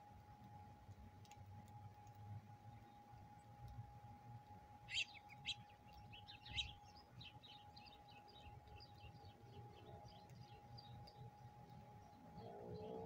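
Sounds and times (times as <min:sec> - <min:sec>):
songbird chirping and warbling: 0:04.8 - 0:13.0.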